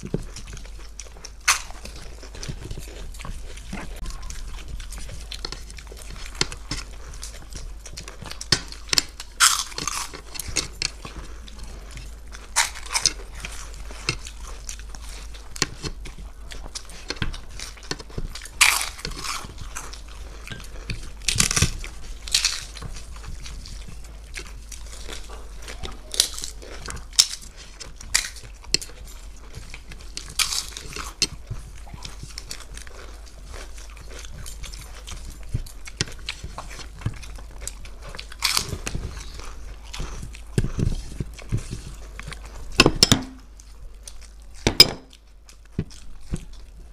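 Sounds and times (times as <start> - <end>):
wet chewing and smacking: 0.0 - 46.9.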